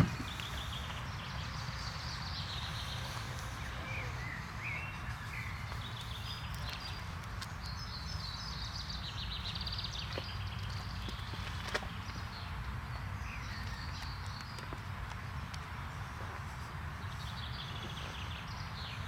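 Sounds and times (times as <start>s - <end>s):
birds chirping and calling: 0.0s - 14.8s.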